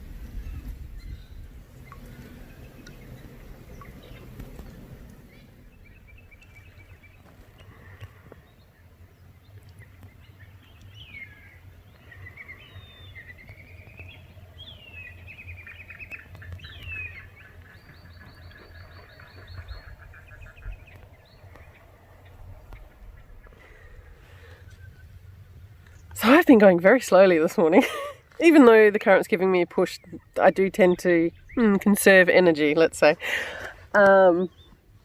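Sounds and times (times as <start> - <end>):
low rumble: 0.0 - 7.9, 16.5 - 26.1
birds singing: 0.2 - 27.2, 27.8 - 35.0.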